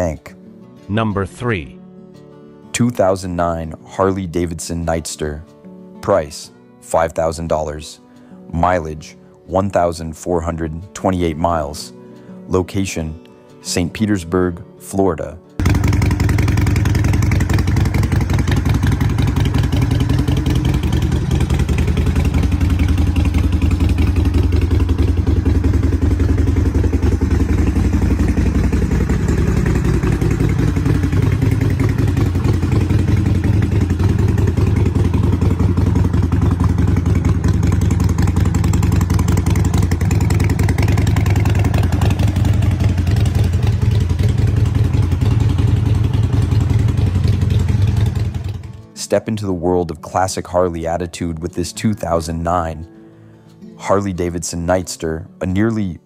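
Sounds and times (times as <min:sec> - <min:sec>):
motorcycle engine running: 0:15.6 - 0:48.9.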